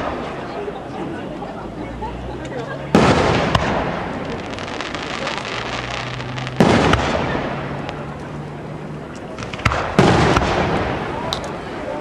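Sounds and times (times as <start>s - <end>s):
sharp crack: 0.0s - 0.5s, 2.9s - 12.0s
rumbling crackle of fireworks: 0.0s - 1.0s, 2.9s - 12.0s.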